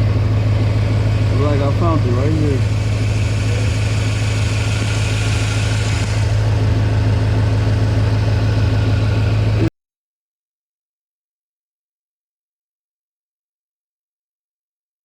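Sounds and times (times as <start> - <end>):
car engine idling: 2.2 - 8.2.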